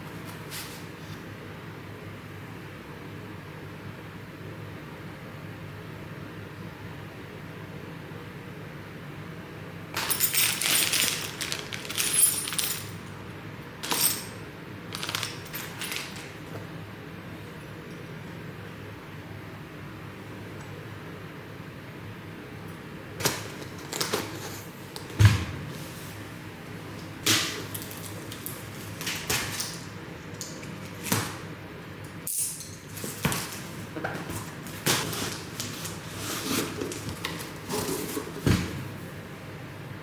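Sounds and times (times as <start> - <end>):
parts and packaging handled: 10.0 - 13.1, 13.8 - 16.5, 32.9 - 38.5.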